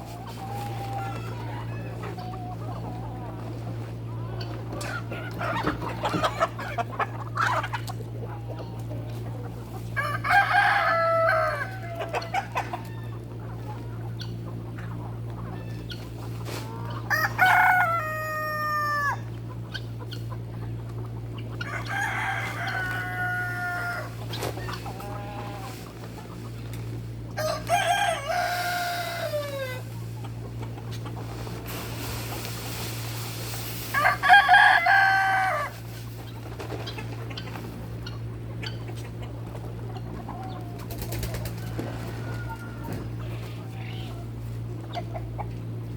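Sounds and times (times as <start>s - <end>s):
steady low hum: 0.0s - 45.9s
rooster crowing: 10.0s - 13.1s, 17.1s - 19.3s, 21.6s - 24.2s, 27.4s - 29.9s, 33.9s - 35.8s, 41.6s - 43.1s.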